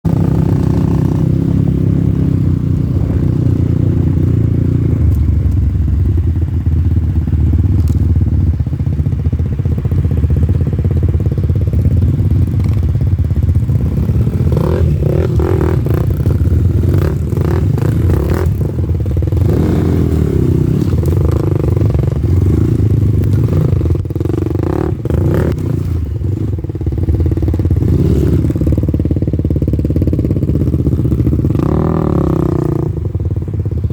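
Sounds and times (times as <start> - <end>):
dirt bike engine running: 0.0 - 33.9.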